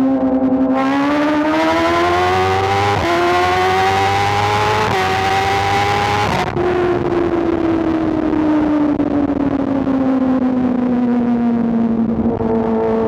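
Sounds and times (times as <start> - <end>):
motorcycle engine accelerating: 0.7 - 10.1.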